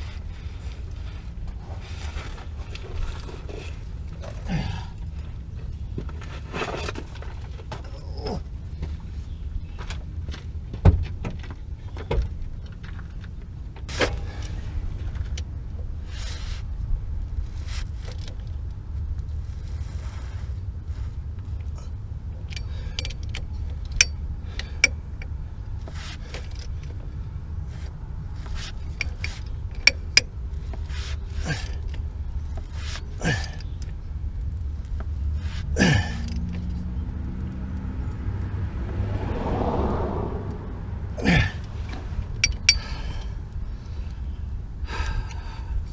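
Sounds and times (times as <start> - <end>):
steady low rumble: 0.0 - 45.9
metallic clicks of tools and bolts: 22.4 - 25.4, 28.4 - 34.0, 41.8 - 43.4.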